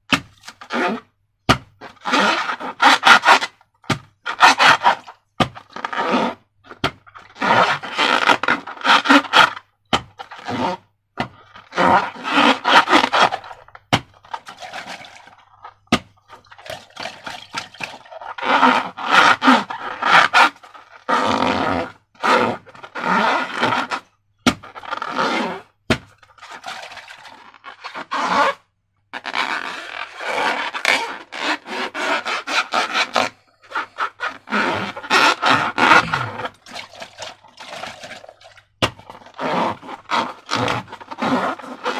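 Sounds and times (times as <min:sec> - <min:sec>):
rubber balloons squishing: 0:00.1 - 0:41.9.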